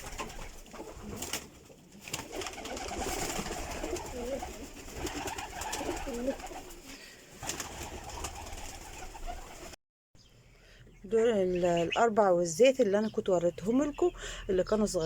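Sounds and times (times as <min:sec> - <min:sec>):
pigeons cooing: 0:00.0 - 0:09.7.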